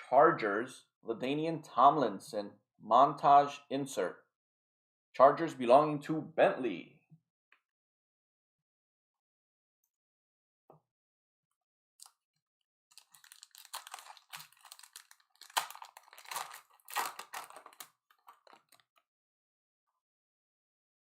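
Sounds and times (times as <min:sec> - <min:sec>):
foil wrapper tearing and crinkling: 0:12.9 - 0:18.9.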